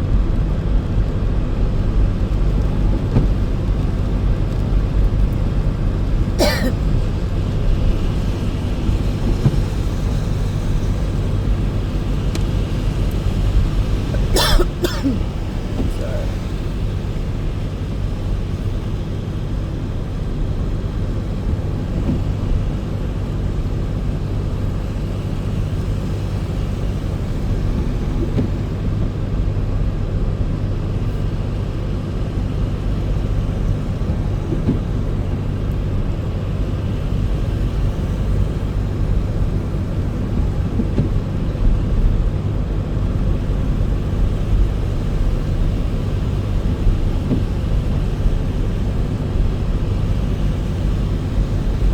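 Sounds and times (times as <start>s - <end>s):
car engine and tyre noise: 0.0s - 51.9s.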